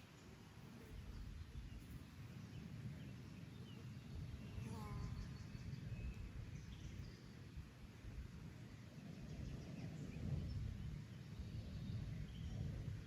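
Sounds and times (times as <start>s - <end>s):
faint bird calls and chirps: 0.0s - 7.4s.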